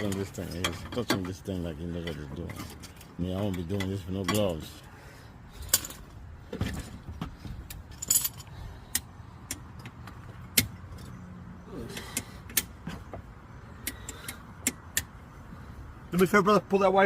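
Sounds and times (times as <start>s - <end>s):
sharp metallic tool clicks and taps: 12.0s - 12.8s, 13.8s - 15.2s.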